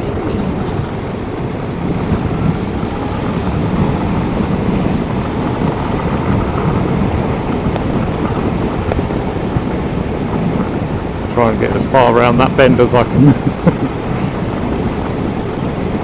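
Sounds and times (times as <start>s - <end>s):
road noise: 0.0s - 16.0s
wind rush on helmet microphone: 0.0s - 16.0s
faint clicks: 5.2s - 10.8s.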